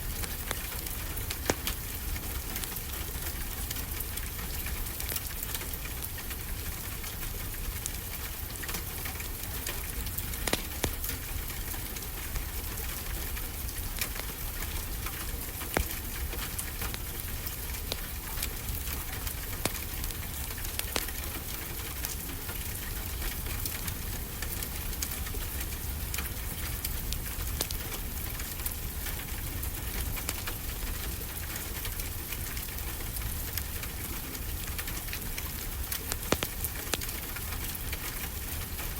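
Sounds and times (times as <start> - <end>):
steady rain: 0.0 - 38.9
wood fire crackling: 0.0 - 38.9.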